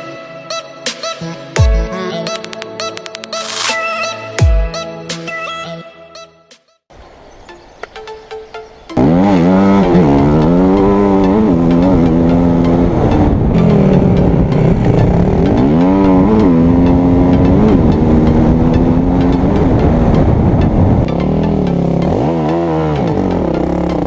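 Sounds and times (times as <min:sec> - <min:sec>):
dirt bike engine revving: 0:09.0 - 0:24.0.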